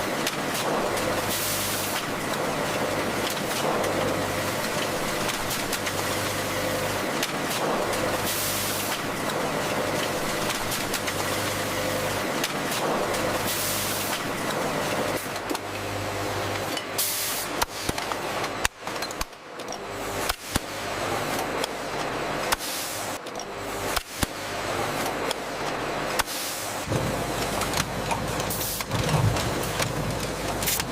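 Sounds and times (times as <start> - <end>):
sharp mechanical clicks and knocks: 17.6 - 20.7, 21.4 - 24.4, 25.0 - 30.9
machinery humming: 24.6 - 30.9.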